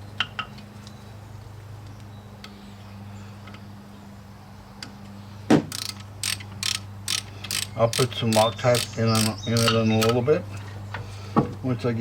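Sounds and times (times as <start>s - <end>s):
hand ratchet clicking: 5.7s - 10.2s.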